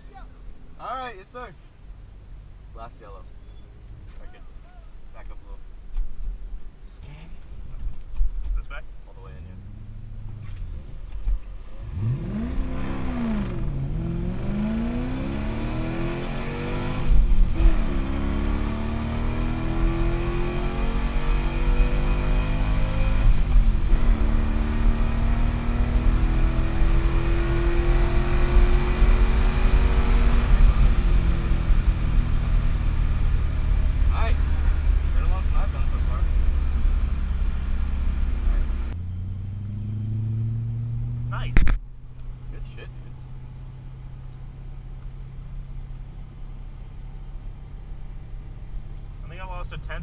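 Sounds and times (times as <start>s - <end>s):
car engine idling: 0.0s - 14.8s, 31.3s - 50.0s
car engine accelerating hard: 9.2s - 47.9s.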